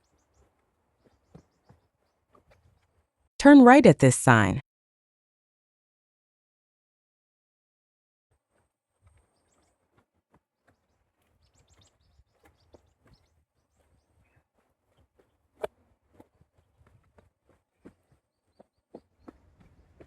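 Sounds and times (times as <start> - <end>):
footsteps on dirt path: 0.0 - 2.9, 8.4 - 20.0
small birds chirping: 0.0 - 3.0, 10.6 - 15.5, 17.6 - 20.0.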